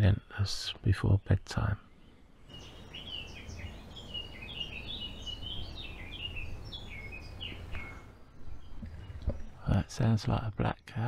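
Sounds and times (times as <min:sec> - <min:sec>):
bird singing fast warble: 0:01.8 - 0:09.6.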